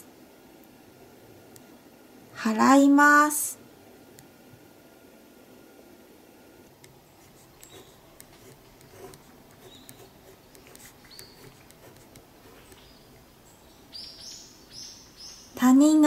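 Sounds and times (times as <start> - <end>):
faint background hiss: 0.0 - 16.0
small birds chirping: 7.5 - 8.0, 9.0 - 15.7.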